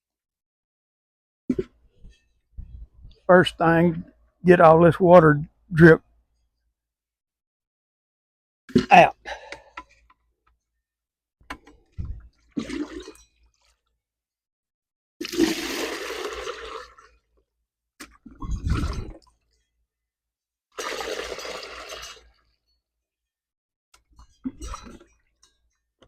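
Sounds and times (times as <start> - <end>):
water pouring and splashing: 12.0 - 13.8, 15.2 - 17.2, 18.2 - 19.4, 20.8 - 22.4.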